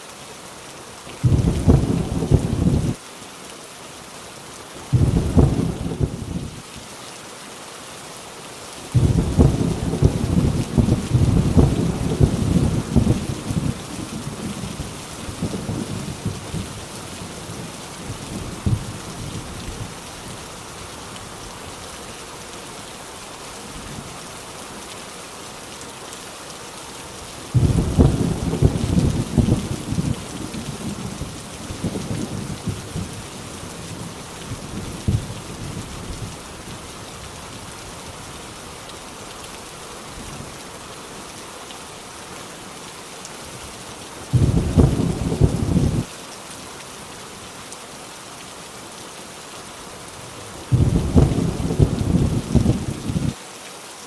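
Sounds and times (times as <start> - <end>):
heavy rain on a tin roof: 0.0 - 54.0
thunder rumbling: 1.2 - 3.0, 4.9 - 6.6, 9.0 - 19.9, 27.5 - 36.4, 44.3 - 46.1, 50.7 - 53.4.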